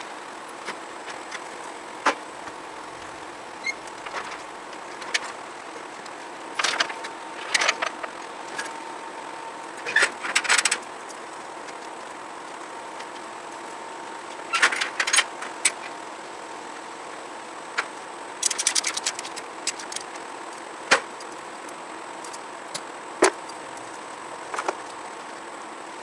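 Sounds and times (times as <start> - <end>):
faint hum: 0.0 - 26.0
rapid ratcheting clicks: 17.8 - 23.9.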